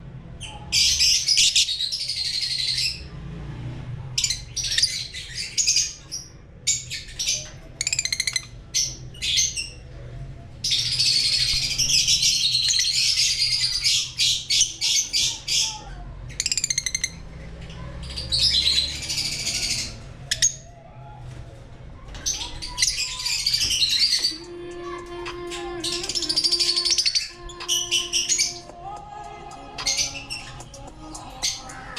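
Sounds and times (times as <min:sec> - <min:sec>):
lovebirds chirping and squawking: 0:00.4 - 0:03.1, 0:04.2 - 0:10.0, 0:10.6 - 0:20.7, 0:22.1 - 0:31.9.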